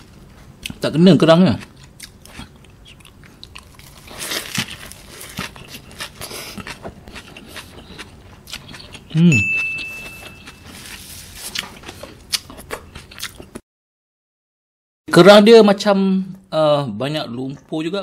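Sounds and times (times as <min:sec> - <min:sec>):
chewing with wet clicks: 0:01.6 - 0:04.0, 0:05.4 - 0:10.7, 0:11.5 - 0:13.6
high ringing ding: 0:09.3 - 0:10.8.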